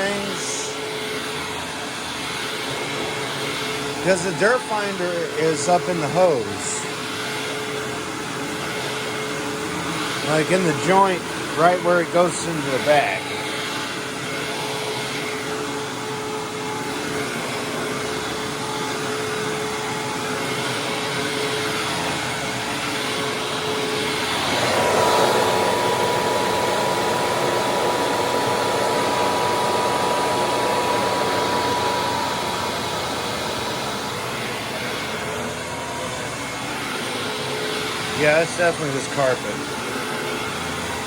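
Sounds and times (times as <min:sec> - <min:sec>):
upright vacuum cleaner whining: 0:00.0 - 0:41.0.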